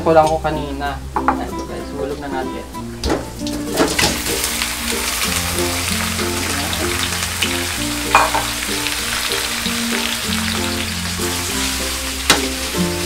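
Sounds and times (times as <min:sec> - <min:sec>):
background music with bass line: 0:00.0 - 0:13.0
chicken sizzling in hot oil: 0:03.4 - 0:13.0.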